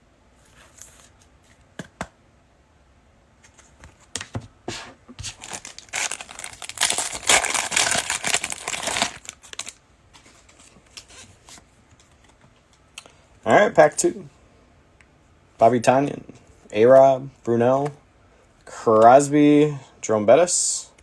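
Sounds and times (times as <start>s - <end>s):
wrapper crinkling and tearing: 5.2s - 9.8s.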